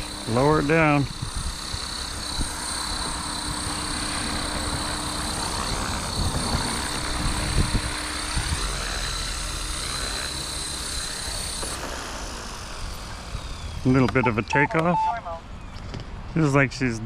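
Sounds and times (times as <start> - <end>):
rc helicopter motor whine: 0.0 - 16.1
wind rumbling on microphone: 1.0 - 8.9.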